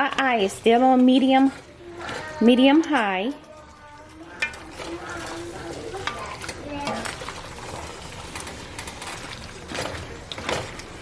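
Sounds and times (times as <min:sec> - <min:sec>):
food sizzling: 0:00.0 - 0:11.0
spoon scraping a pot: 0:04.2 - 0:07.2.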